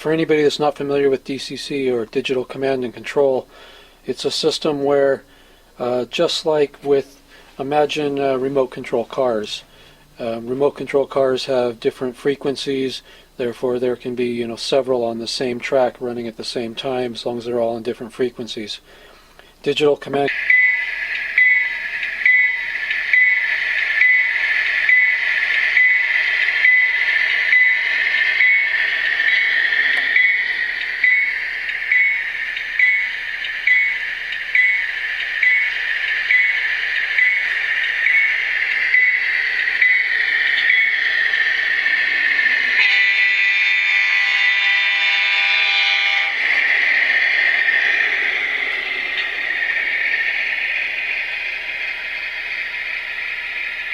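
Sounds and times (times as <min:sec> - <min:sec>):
diesel engine sound: 0:20.1 - 0:53.9
locomotive bell ringing: 0:20.1 - 0:53.9
locomotive horn blast: 0:20.3 - 0:50.0.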